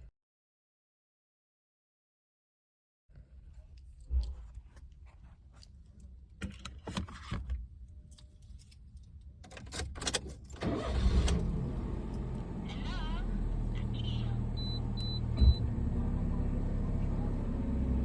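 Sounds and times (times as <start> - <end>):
car engine starting and running: 10.0 - 18.0.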